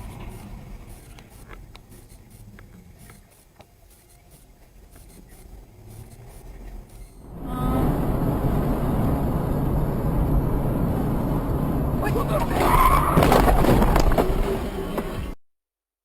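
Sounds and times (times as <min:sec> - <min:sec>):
scratchy rubbing noises: 0:00.0 - 0:07.2
low rumble inside car: 0:05.8 - 0:12.6.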